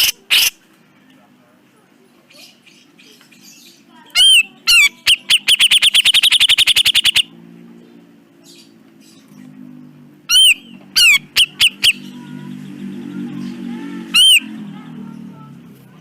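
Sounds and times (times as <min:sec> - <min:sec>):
bulbul calling: 0:04.2 - 0:07.3, 0:10.3 - 0:12.3, 0:14.1 - 0:14.6.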